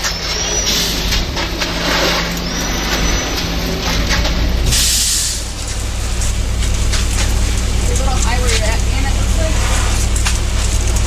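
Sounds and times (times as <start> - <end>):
heavy truck engine running: 0.0 - 11.0
hiss burst: 0.5 - 5.8.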